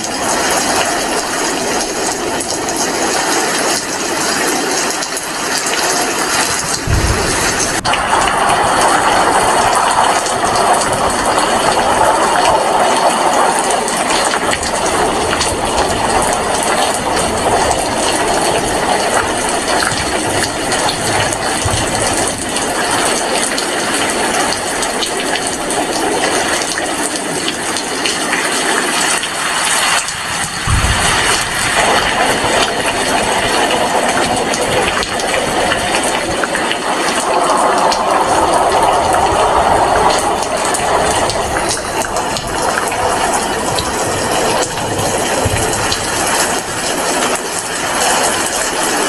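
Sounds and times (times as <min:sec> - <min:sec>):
heavy rain falling: 0:00.0 - 0:49.0
brief low thump: 0:06.8 - 0:08.2.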